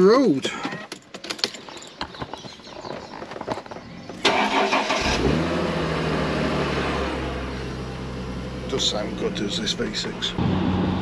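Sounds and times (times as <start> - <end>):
car engine starting and idling: 3.8 - 11.0.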